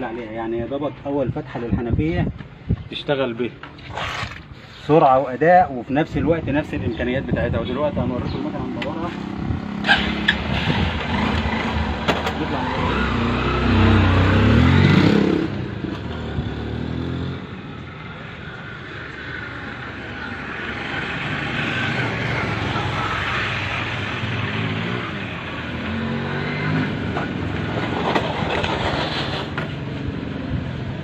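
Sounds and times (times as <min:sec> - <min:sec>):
motorcycle engine revving: 0:07.4 - 0:30.6.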